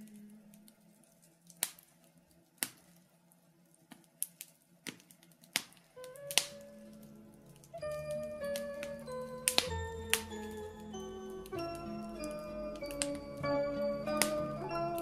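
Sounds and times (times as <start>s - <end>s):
fire popping: 0.0s - 15.0s
wood fire crackling: 0.0s - 15.0s
song music: 6.0s - 15.0s.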